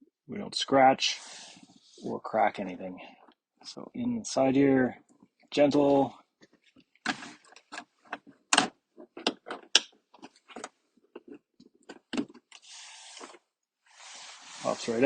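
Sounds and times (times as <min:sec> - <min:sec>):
short scraping hiss: 0:01.2 - 0:02.0, 0:12.6 - 0:15.0.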